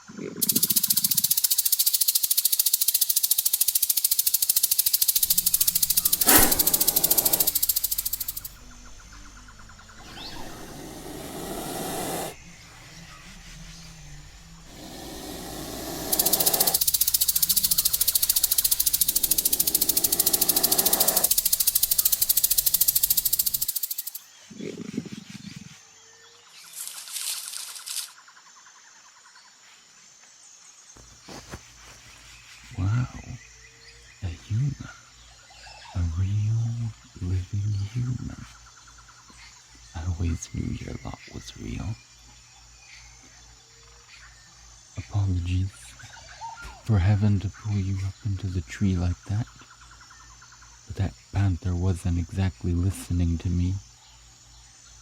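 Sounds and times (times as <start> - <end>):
insects chirping: 0.0 - 55.0
dense insect buzzing: 0.4 - 24.2
hissing rustling swells: 4.2 - 24.2.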